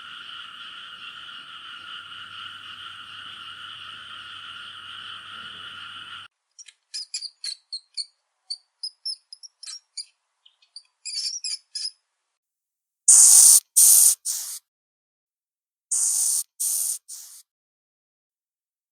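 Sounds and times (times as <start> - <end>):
high chirps and clicks: 13.1 - 14.6, 15.9 - 17.4
loud hisses: 13.1 - 14.6, 15.9 - 17.4
two-pitched animal trill: 13.1 - 14.6, 15.9 - 17.0.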